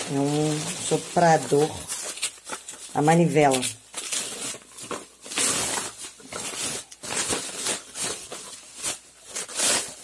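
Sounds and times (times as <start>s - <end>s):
packaging rustling and crinkling: 0.0s - 10.0s.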